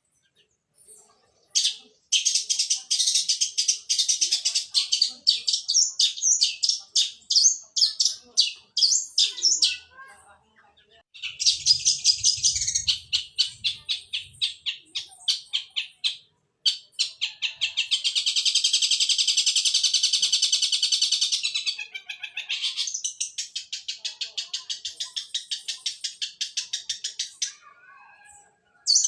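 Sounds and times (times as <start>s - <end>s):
shrike singing chattering song: 0.1s - 29.0s.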